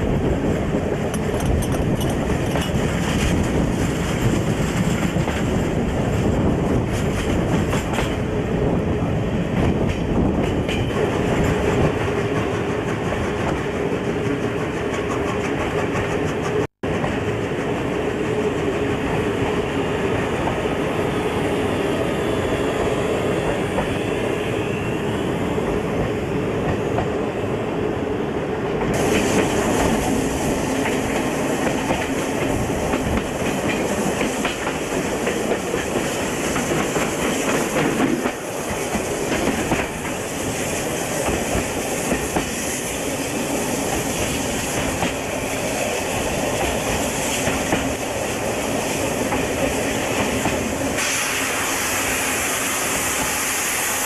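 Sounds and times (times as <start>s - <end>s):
rolling rail noise: 0.0s - 54.0s
wheels clicking over rail joints: 1.0s - 3.6s.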